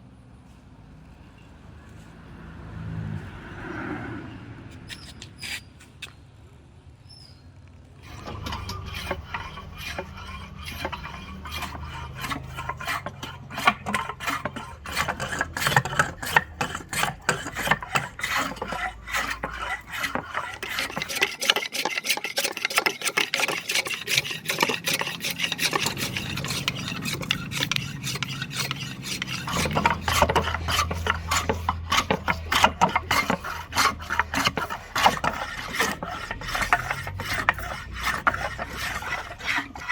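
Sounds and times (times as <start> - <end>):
hand tool rasping wood: 8.0 - 39.9.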